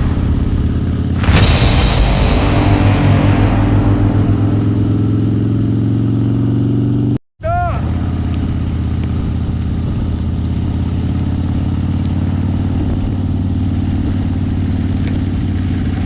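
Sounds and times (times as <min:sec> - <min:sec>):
wind rush: 0:01.2 - 0:05.9.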